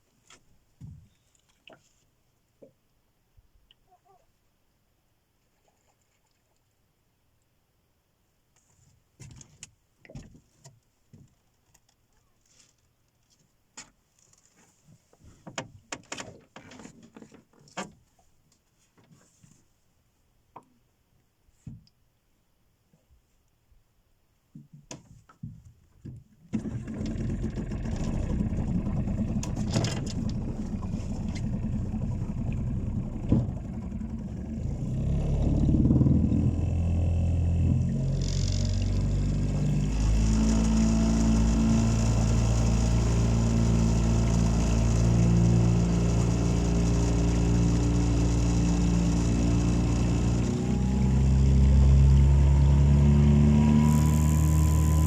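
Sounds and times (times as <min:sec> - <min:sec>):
small boat engine running: 0:26.5 - 0:55.0.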